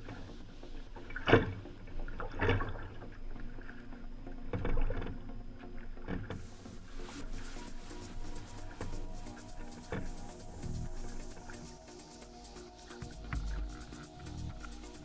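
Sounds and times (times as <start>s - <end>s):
kayak paddle splashing: 6.4s - 15.0s.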